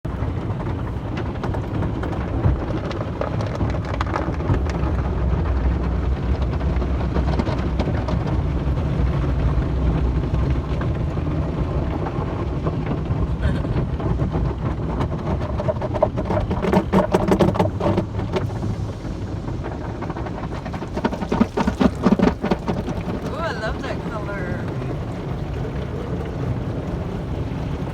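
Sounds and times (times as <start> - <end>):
low mechanical rumble: 0.1 - 16.3, 17.6 - 27.9
water spray drumming on car: 0.1 - 27.9
patter and clatter: 0.4 - 11.4, 13.8 - 23.3.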